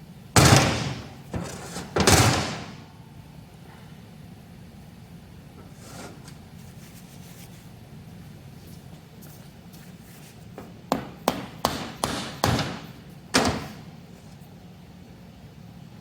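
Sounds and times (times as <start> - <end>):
hammer tapping on metal: 10.9 - 12.8.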